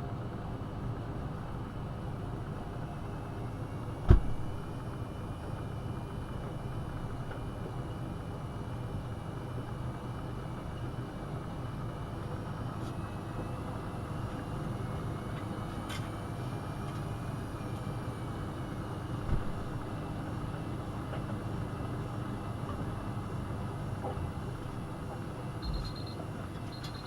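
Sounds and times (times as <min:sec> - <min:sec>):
washing machine humming: 0:00.0 - 0:27.0
short low thump: 0:04.1 - 0:04.5.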